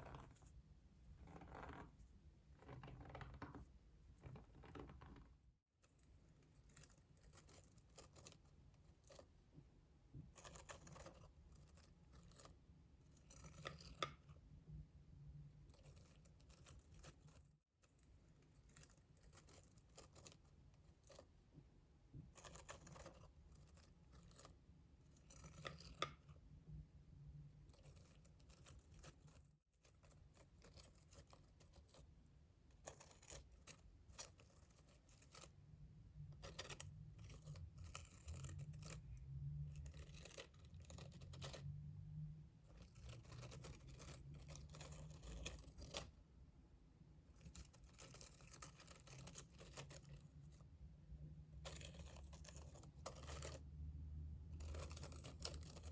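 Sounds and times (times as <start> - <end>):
scratchy rustling of objects: 0.0 - 9.4, 27.6 - 42.0, 42.6 - 46.2, 47.3 - 50.7, 51.5 - 55.9.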